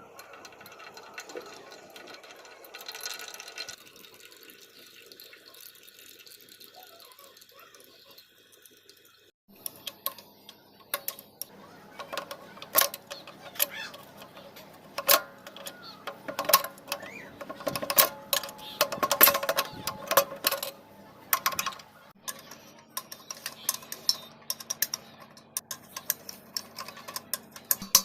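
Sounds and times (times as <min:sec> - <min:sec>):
metallic clinks of hand tools: 0:12.0 - 0:28.0.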